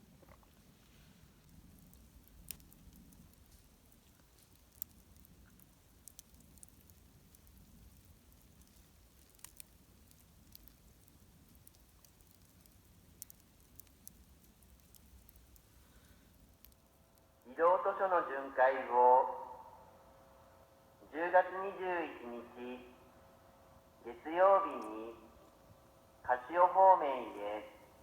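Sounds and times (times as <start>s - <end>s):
faint sharp clicks and crackles: 0.0s - 17.5s
faint low rumble: 0.0s - 28.0s.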